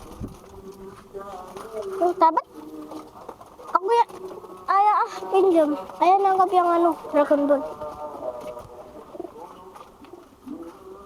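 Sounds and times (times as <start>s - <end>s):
pigeons cooing: 6.6s - 11.0s.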